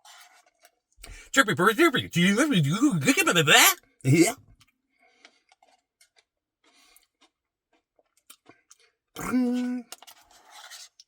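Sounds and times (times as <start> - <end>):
person chewing ice cream: 5.2 - 11.0.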